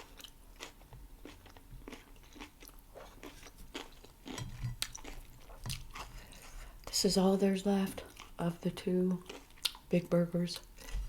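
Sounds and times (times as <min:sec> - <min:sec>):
chewing food: 0:00.0 - 0:06.7, 0:08.0 - 0:10.0
small crunches: 0:00.1 - 0:06.5.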